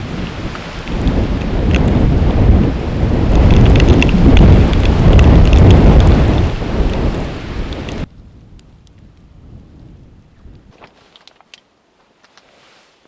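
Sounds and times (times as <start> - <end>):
wind and rain rushing: 0.0 - 10.8
crackles: 0.0 - 13.0.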